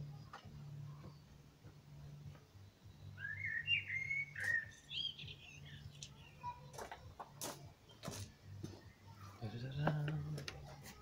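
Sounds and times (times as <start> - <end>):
bird singing warbling phrase: 3.1 - 6.5.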